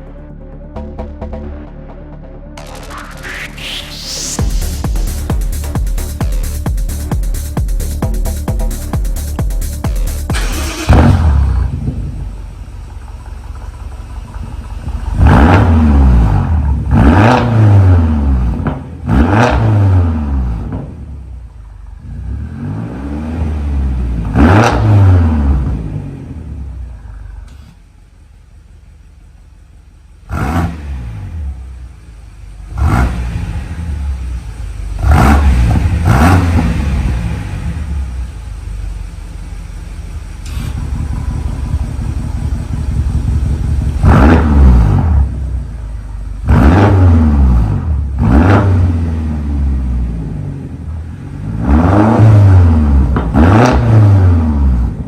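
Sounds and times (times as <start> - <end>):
car engine revving hard: 2.6 - 12.2, 15.1 - 21.0, 22.0 - 26.6, 30.3 - 31.8, 32.6 - 38.3, 40.4 - 45.7, 46.4 - 55.0.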